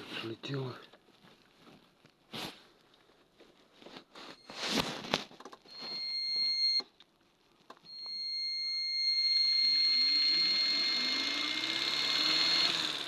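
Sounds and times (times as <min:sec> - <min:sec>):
handling rustles: 0:00.9 - 0:06.1
high-pitched electronic whine: 0:07.9 - 0:13.0.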